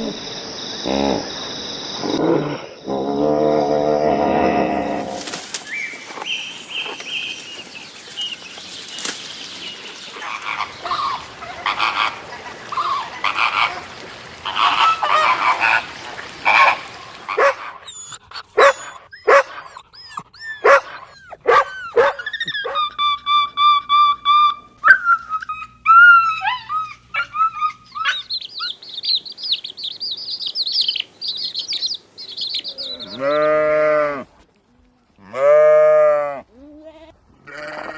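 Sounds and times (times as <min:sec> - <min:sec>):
rough honking calls: 0:10.2 - 0:17.7
dense high peeping: 0:28.0 - 0:33.3.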